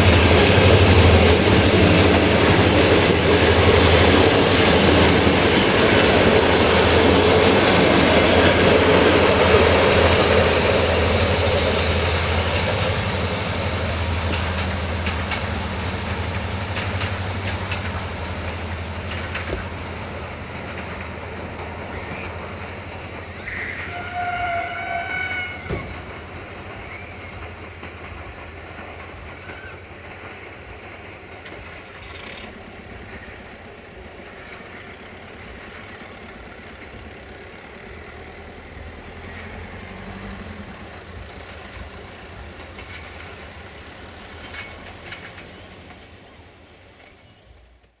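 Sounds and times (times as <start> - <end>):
train rumbling: 0.0 - 48.0
train horn: 23.4 - 26.0.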